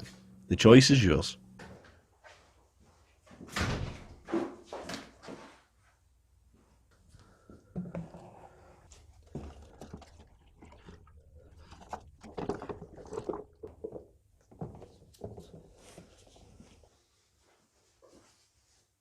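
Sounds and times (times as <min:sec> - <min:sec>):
low steady hum: 0:00.0 - 0:02.0.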